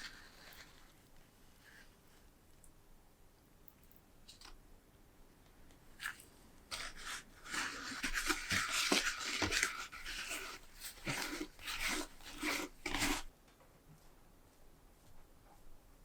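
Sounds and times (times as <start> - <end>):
rustling and scraping material: 0.0 - 2.3, 5.9 - 13.4.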